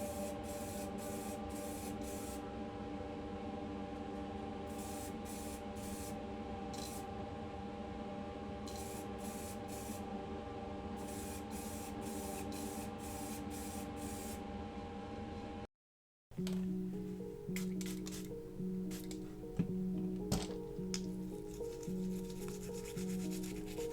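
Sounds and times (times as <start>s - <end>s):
spray paint hissing: 0.0s - 2.4s, 4.7s - 6.2s, 8.7s - 10.0s, 11.0s - 14.4s, 17.5s - 19.3s, 20.4s - 23.9s.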